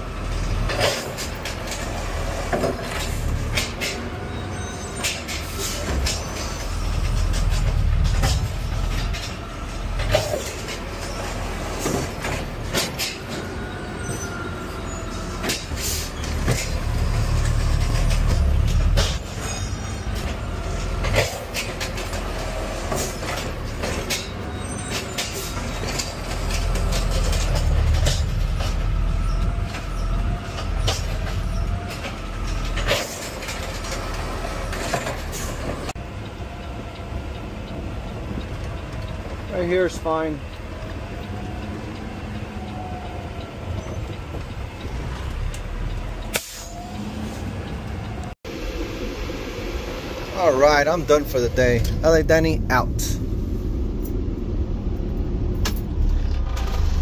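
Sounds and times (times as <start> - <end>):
garbage truck engine rumble: 0.0 - 57.0
faint wavering squeals: 4.2 - 7.4, 13.3 - 16.4.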